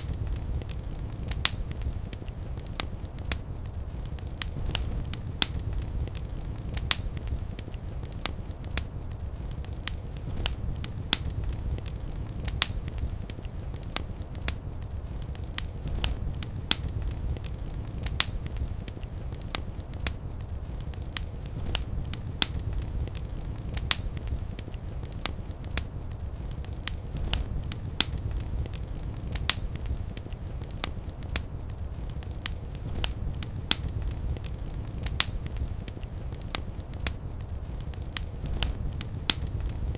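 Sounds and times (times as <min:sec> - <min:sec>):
fire crackling and popping: 0:00.0 - 0:39.9
low rumble of flames: 0:00.0 - 0:39.9.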